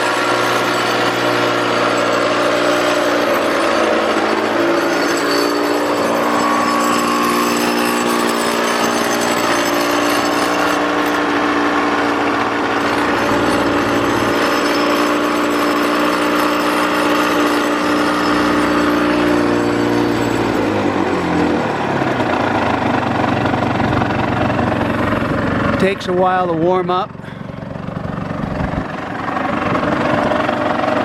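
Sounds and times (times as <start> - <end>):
two-stroke motorcycle engine idling: 20.7 - 31.0.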